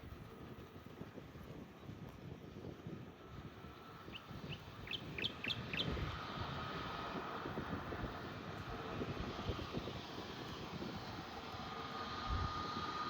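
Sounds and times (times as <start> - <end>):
wind rumbling on microphone: 0.0 - 13.0
distant jet aircraft hum: 3.4 - 13.0
bird chirping: 4.1 - 5.9.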